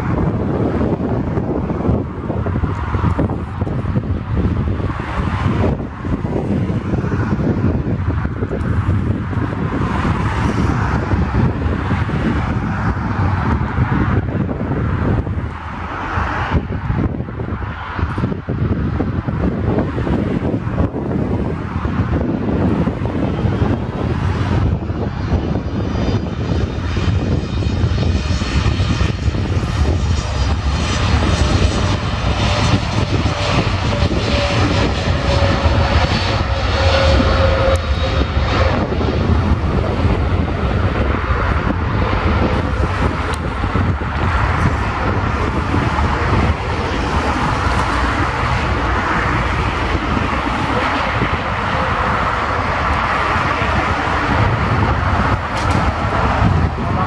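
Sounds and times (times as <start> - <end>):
jet engine whine: 0.0 - 57.0
jet engines roaring: 0.0 - 57.0.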